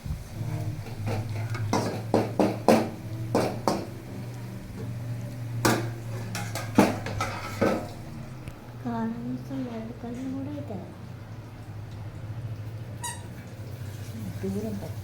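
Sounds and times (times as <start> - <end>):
steady low hum: 0.0 - 13.0
onions frying: 0.0 - 15.0
spoon clanking against a pan: 0.5 - 8.6.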